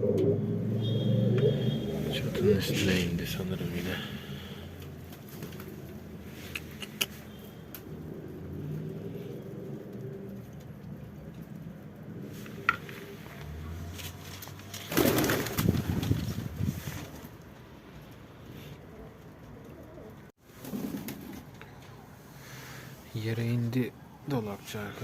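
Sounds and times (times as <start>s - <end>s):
pigeons cooing: 0.0s - 3.0s, 18.5s - 22.2s
wings rustling flurry: 3.7s - 17.4s, 20.4s - 21.6s.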